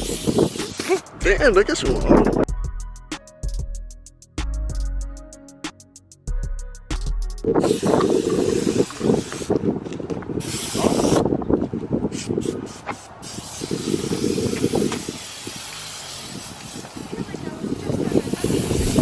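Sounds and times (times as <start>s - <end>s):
spray paint can hissing: 0.0s - 1.2s, 7.6s - 9.7s, 10.4s - 11.3s, 12.0s - 19.0s.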